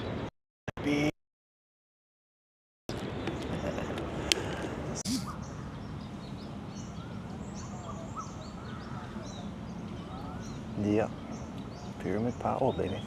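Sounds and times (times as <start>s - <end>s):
birds chirping: 2.9s - 13.0s.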